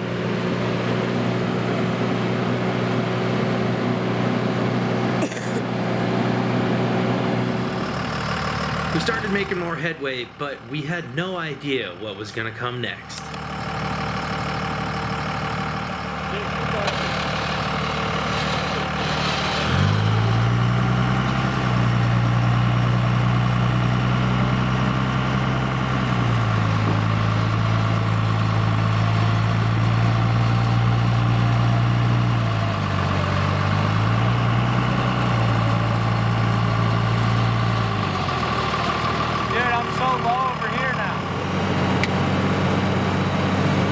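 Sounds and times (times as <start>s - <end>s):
truck engine at raised revs: 0.0s - 43.9s
electric winch motor straining: 13.2s - 30.3s.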